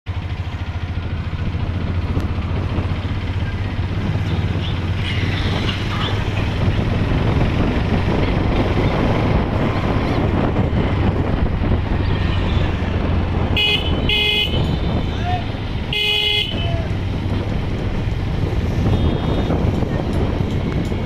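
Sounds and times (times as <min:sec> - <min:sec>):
motorcycle engine throbbing: 0:00.1 - 0:21.0.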